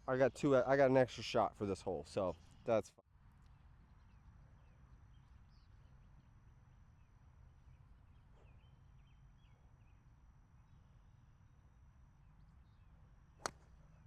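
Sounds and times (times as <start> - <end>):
faint background hum: 0.0 - 14.0
faint bird chirps: 3.4 - 11.0.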